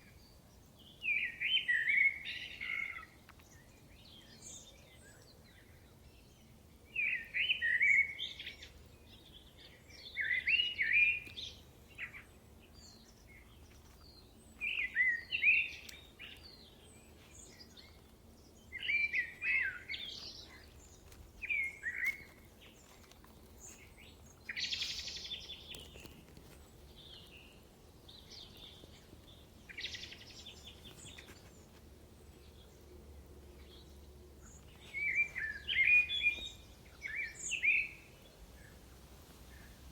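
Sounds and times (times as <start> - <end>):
songbird singing whistled notes: 0.0 - 23.0, 23.6 - 31.6, 33.6 - 39.9
faint low hum: 11.3 - 39.9.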